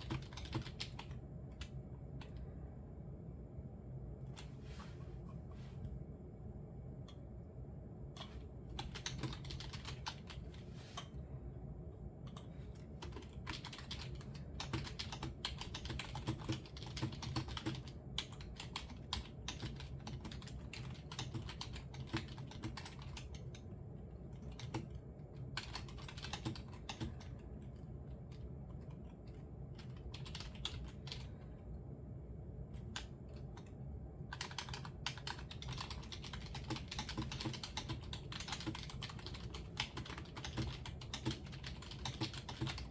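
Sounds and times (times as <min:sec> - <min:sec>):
keyboard typing: 0:00.0 - 0:02.4, 0:08.1 - 0:11.1, 0:12.3 - 0:23.6, 0:24.3 - 0:31.4, 0:32.8 - 0:42.9
low steady hum: 0:00.0 - 0:42.9.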